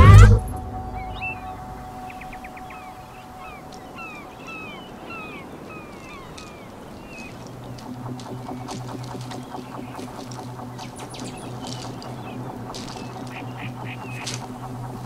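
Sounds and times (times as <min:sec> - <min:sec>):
bird calling: 0:00.0 - 0:15.0
faint rhythmic clicking: 0:00.0 - 0:15.0
low steady hum: 0:00.0 - 0:15.0.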